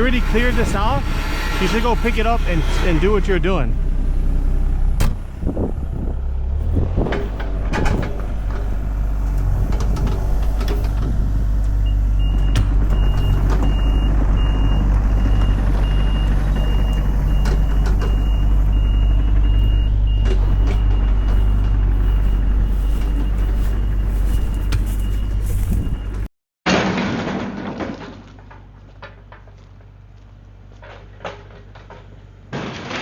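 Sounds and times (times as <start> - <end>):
heavy diesel equipment running: 0.0 - 26.3
backup alarm beeping: 11.8 - 26.3
debris knocks: 26.7 - 29.3, 32.5 - 33.0.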